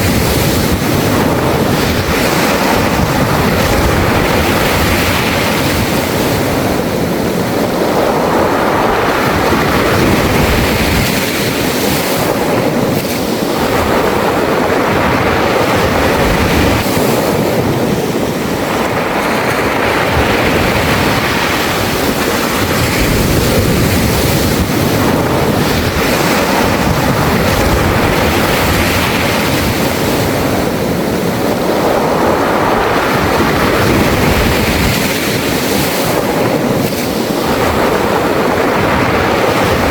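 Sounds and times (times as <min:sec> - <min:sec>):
waves washing over pebbles: 0:00.0 - 0:39.9.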